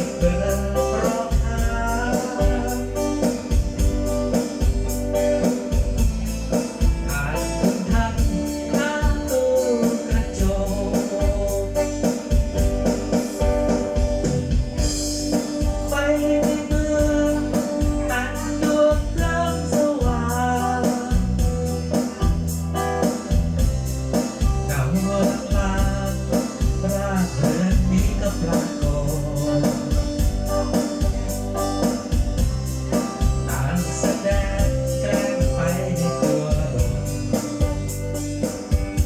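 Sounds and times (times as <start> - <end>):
song with heavy bass beat: 0.0 - 39.0.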